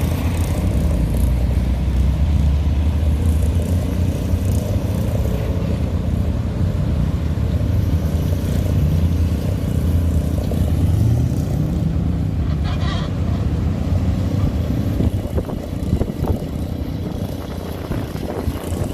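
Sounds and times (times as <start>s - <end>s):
car engine rumbling: 5.8s - 18.9s.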